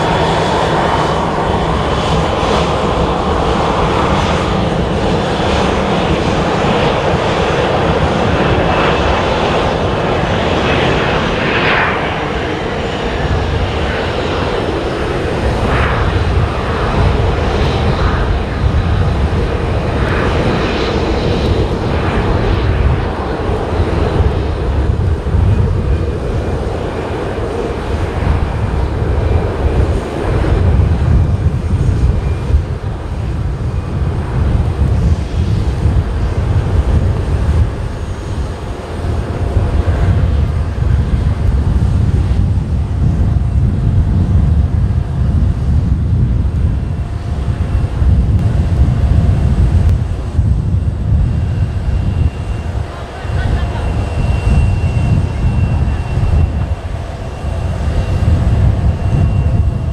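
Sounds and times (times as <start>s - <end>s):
jet engines rumbling: 0.0s - 59.9s
strong wind: 0.0s - 59.9s.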